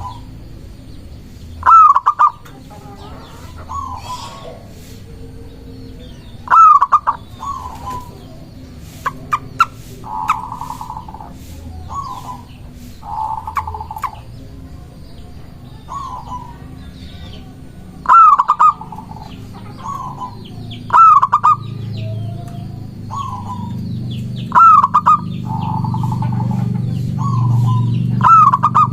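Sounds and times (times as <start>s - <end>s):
doves cooing: 0.0s - 28.9s.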